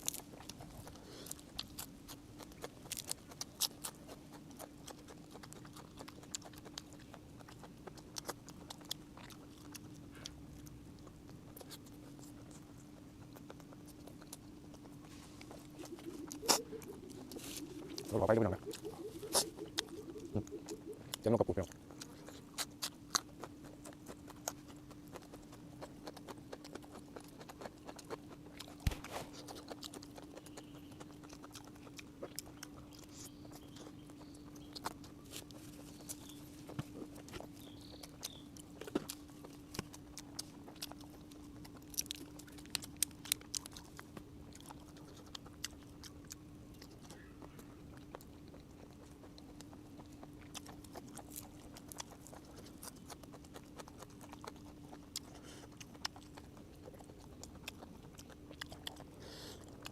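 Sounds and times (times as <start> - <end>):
person chewing: 0.0 - 59.9
steady low hum: 0.0 - 59.9
mouth smacks and clicks: 11.0 - 59.9.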